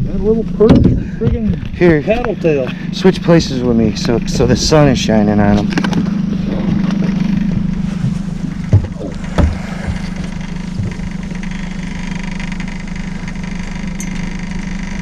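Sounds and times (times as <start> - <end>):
boat motor running: 0.0 - 15.0
short knocks: 8.1 - 11.4.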